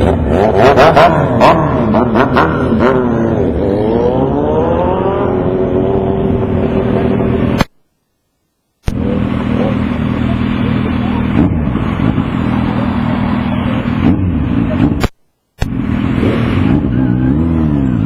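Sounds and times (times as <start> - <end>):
motorcycle engine running: 8.9 - 18.0.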